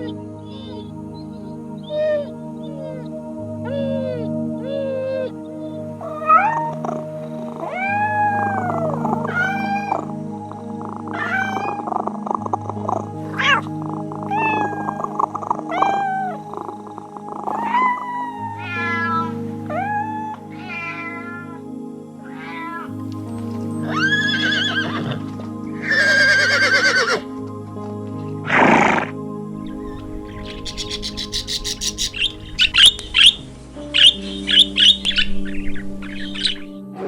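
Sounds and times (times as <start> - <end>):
soft background music: 0.0 - 37.0
cat meowing: 7.6 - 10.0, 11.2 - 11.8, 14.3 - 16.4, 17.5 - 21.6, 22.3 - 22.9.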